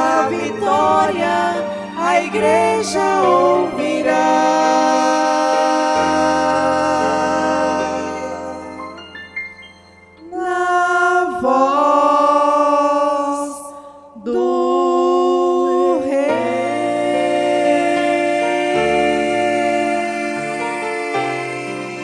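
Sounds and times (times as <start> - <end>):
musical accompaniment: 0.0 - 10.6, 16.2 - 22.0.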